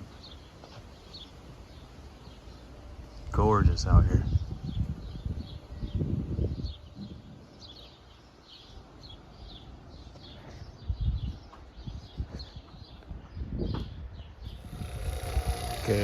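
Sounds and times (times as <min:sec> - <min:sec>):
low rumbling noise: 0:14.5 - 0:16.0.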